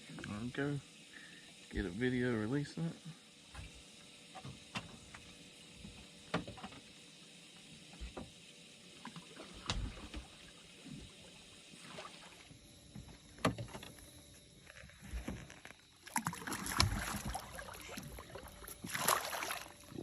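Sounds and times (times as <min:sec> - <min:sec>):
knocks on small boat: 0:06.3 - 0:06.8
water splashing: 0:09.0 - 0:12.5, 0:15.3 - 0:20.0.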